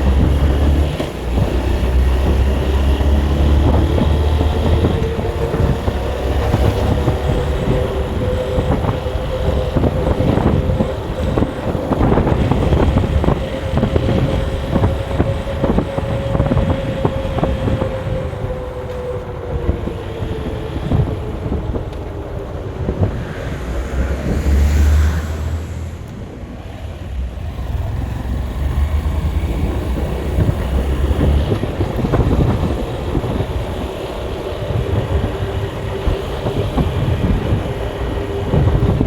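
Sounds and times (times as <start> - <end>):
vehicle whine: 0.0 - 39.0
wind on microphone: 0.0 - 39.0
low rumble: 20.5 - 33.9.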